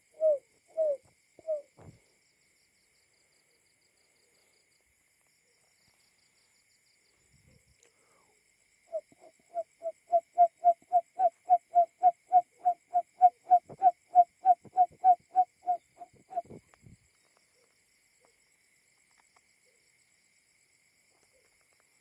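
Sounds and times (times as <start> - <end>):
quail low hooting call: 0.0 - 1.8, 8.9 - 16.7.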